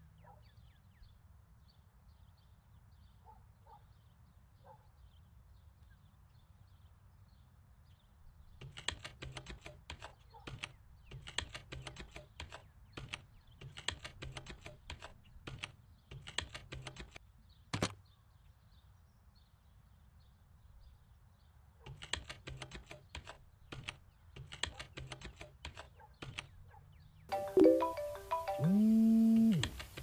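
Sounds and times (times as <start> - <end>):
computer keyboard typing: 8.6 - 17.2.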